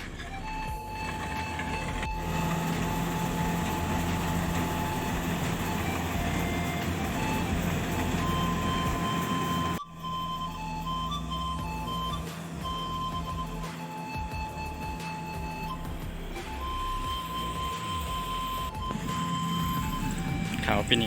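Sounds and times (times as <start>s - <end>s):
combine harvester engine humming: 0.0s - 21.0s.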